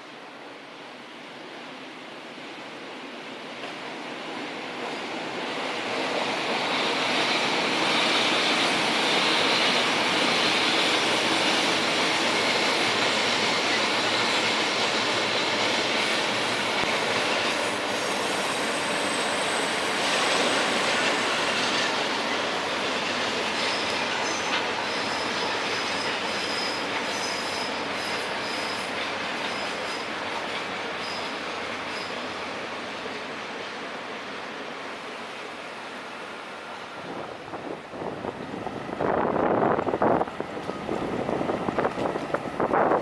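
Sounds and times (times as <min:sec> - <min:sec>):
train running on rails: 0:00.0 - 0:43.0
wheels squealing: 0:06.4 - 0:32.4.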